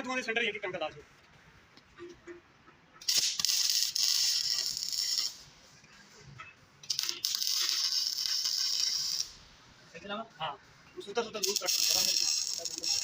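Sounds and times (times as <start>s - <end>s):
crackling welding arc: 3.0s - 5.5s, 6.8s - 9.5s, 11.3s - 13.0s.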